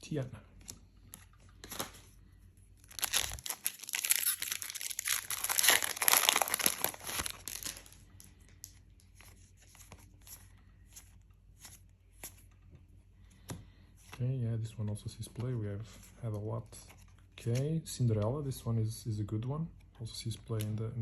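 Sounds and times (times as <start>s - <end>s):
wrapper tearing and crinkling: 2.8s - 8.0s.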